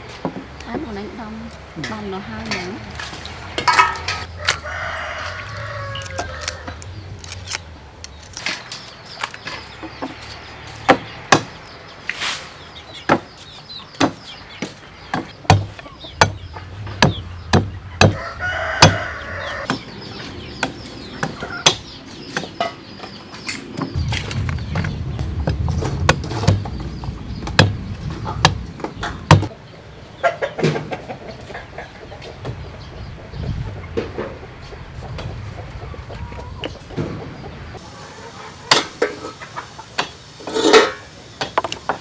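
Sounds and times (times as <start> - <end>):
rooster crowing: 4.2 - 6.9, 18.0 - 19.7.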